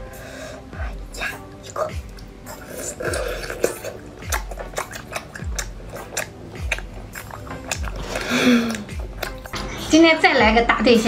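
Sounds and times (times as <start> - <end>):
background music with deep beat: 0.0 - 11.0
biting and chewing seafood: 1.2 - 9.6.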